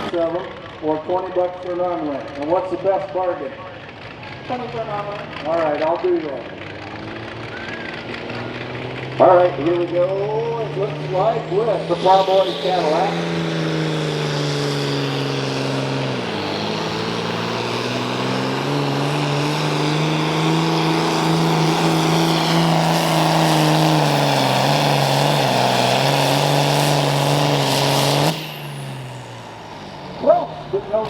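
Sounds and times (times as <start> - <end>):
tractor diesel engine under load: 0.0 - 31.0.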